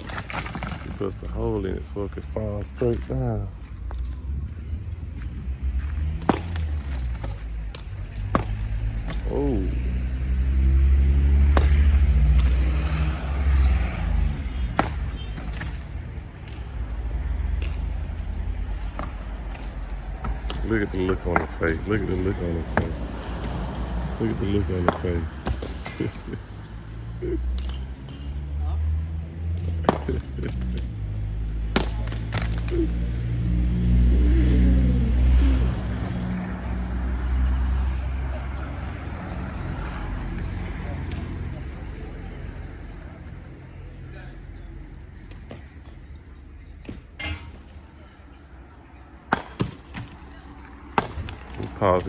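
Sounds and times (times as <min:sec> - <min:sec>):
demolition clicks on brick: 0:00.0 - 0:01.3
vehicle engine rumble: 0:00.0 - 0:52.0.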